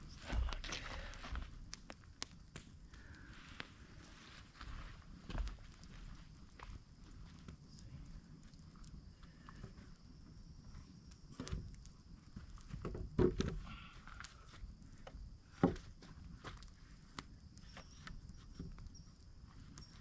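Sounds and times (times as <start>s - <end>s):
footsteps: 0.0s - 1.5s, 4.0s - 6.8s.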